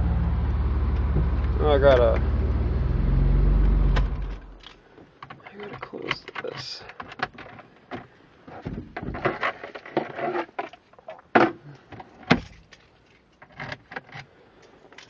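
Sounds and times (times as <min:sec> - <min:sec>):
knocks and clatter: 0:05.2 - 0:12.8
sharp thumps: 0:07.4 - 0:09.5.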